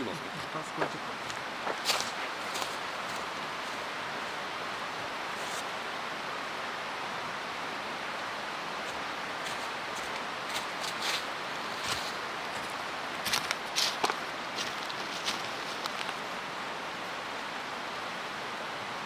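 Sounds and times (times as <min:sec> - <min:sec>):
mountain stream rushing: 0:00.0 - 0:19.0
faint footsteps: 0:00.4 - 0:03.9, 0:08.8 - 0:16.2.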